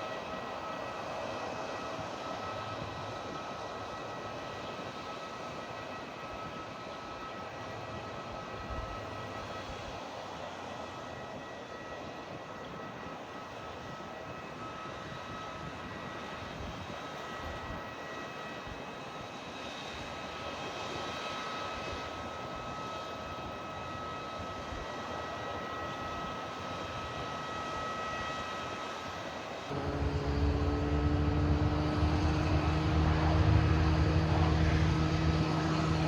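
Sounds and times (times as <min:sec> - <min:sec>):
airliner engines rushing: 0:00.0 - 0:36.0
high engine whine: 0:29.7 - 0:36.0.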